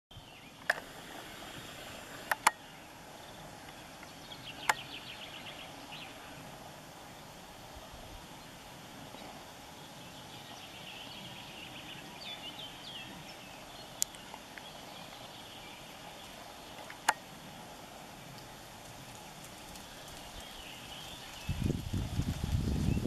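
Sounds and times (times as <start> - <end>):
sharp clicks: 2.3 - 2.6.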